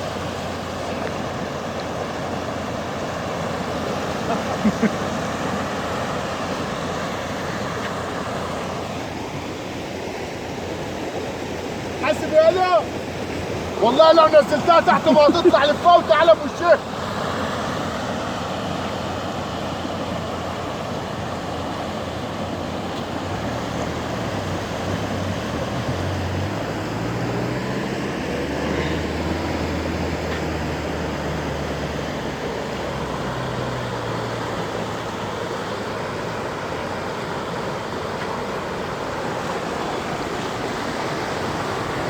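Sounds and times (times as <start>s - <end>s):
vehicle engine running: 19.8s - 37.4s.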